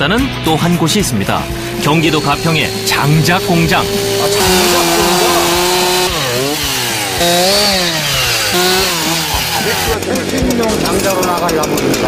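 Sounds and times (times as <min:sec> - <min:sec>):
chainsaw cutting logs: 0:00.7 - 0:12.0.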